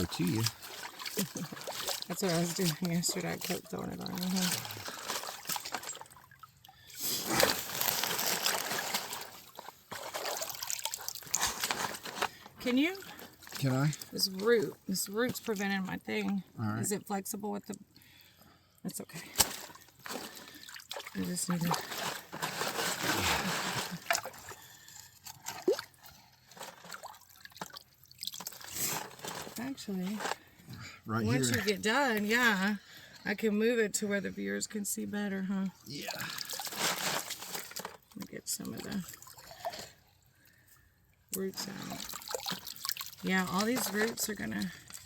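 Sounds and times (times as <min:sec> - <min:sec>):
creek water splashing: 0:00.0 - 0:12.3, 0:41.6 - 0:45.0.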